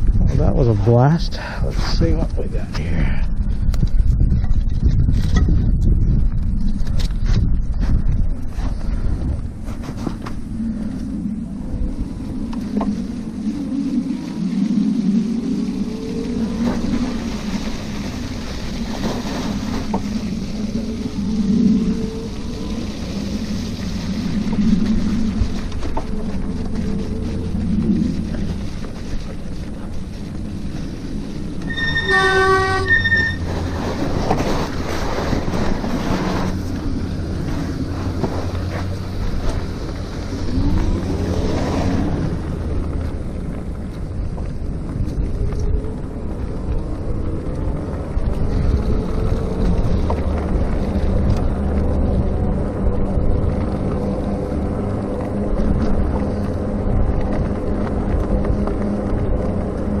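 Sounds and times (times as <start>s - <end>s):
rising whine: 0.0s - 60.0s
wind and road rumble: 0.0s - 60.0s
disc brake squeal: 31.6s - 33.6s.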